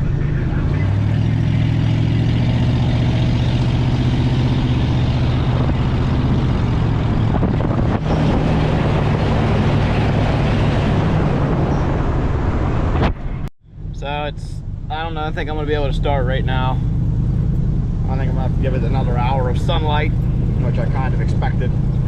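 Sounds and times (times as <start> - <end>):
road noise: 0.0 - 22.0
pickup truck engine running: 13.6 - 22.0.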